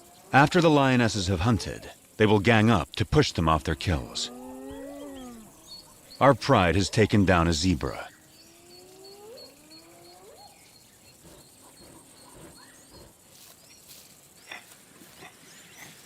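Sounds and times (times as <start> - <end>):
hyenas whooping: 4.0 - 7.1, 8.5 - 13.2
small bird chirping rapidly: 4.7 - 6.4, 8.0 - 16.0.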